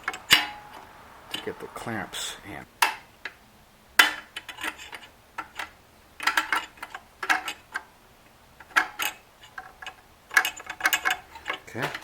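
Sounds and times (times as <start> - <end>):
small metal clicks and rattles: 4.0 - 7.9, 8.6 - 12.0.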